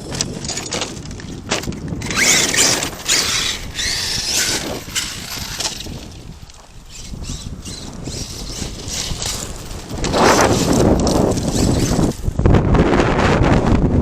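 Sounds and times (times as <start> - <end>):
tyres scrabbling over loose dirt: 0.0 - 12.7
electric motor whining: 1.9 - 12.5.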